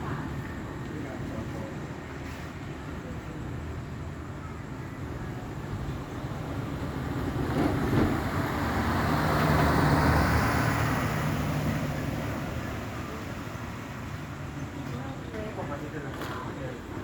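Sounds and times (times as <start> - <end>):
vehicle driving past: 6.7 - 13.9.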